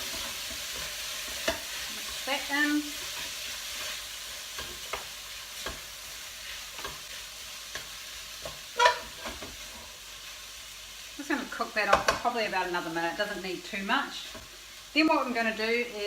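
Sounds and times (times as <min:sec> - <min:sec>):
utensil scraping a pan: 0:00.0 - 0:09.9
food sizzling in a pan: 0:00.0 - 0:16.0.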